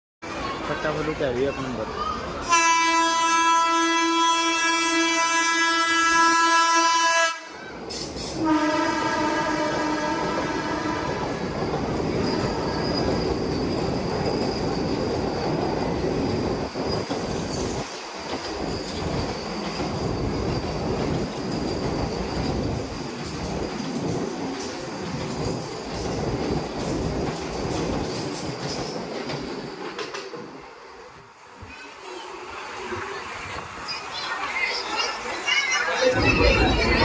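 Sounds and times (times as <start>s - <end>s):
train horn blasts: 2.5s - 7.6s, 8.4s - 11.3s
train wheels rumbling on rails: 7.5s - 37.0s.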